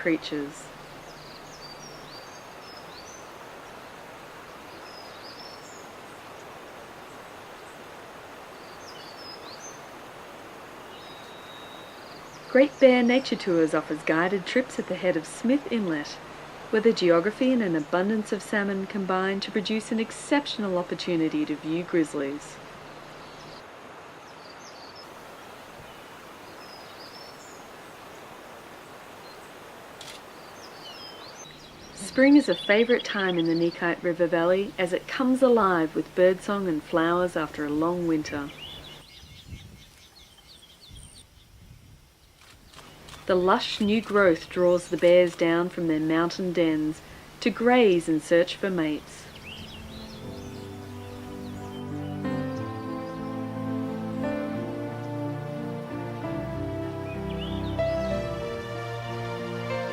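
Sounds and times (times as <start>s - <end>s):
small birds chirping: 0.0s - 13.5s, 21.4s - 45.6s, 46.3s - 55.2s, 56.7s - 58.6s
steady rushing hiss: 0.0s - 59.9s
bird chirps and whistles: 11.0s - 12.0s.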